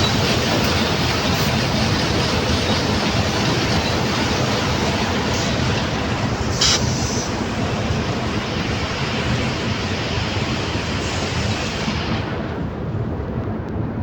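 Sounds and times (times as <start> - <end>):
machinery rumbling and roaring: 0.0 - 14.0
burst of hiss: 6.5 - 7.4.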